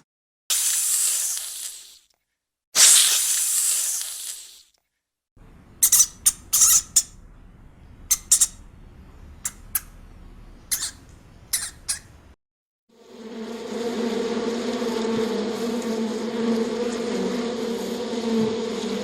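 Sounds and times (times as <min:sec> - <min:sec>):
low steady rumble: 0:05.4 - 0:12.4
high-pitched animal squeaks: 0:05.8 - 0:07.2, 0:08.0 - 0:08.7, 0:09.4 - 0:10.0, 0:10.6 - 0:12.2.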